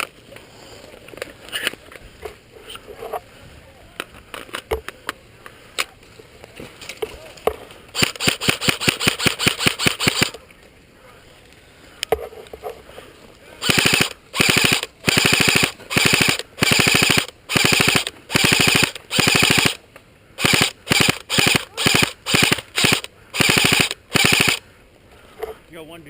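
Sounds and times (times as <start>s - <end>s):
airsoft gun firing full auto: 8.0s - 10.4s, 13.6s - 19.8s, 20.4s - 24.6s.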